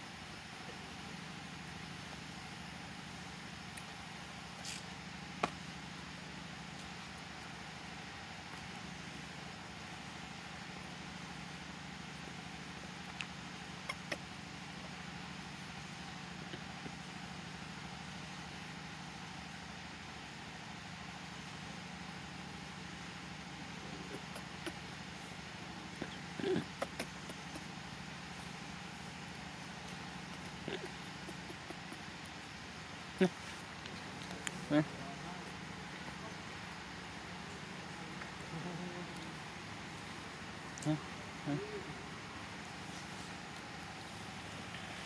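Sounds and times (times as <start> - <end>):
sharp ticks: 29.6 - 32.5.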